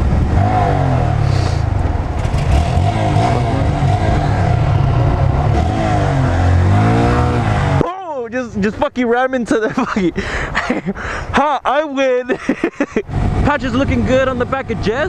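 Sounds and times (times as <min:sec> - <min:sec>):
motorcycle engine revving: 0:00.0 - 0:07.8.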